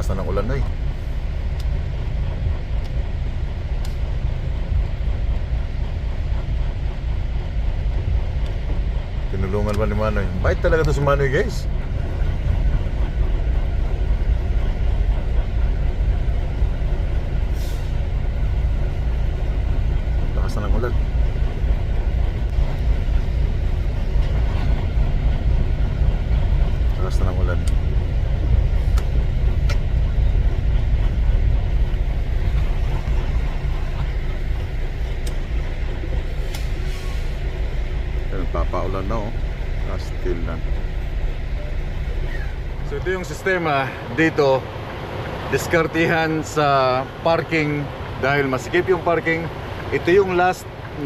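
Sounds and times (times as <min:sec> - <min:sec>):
diesel truck engine idling: 0:00.0 - 0:51.0
air hiss: 0:17.5 - 0:18.0, 0:36.3 - 0:37.6.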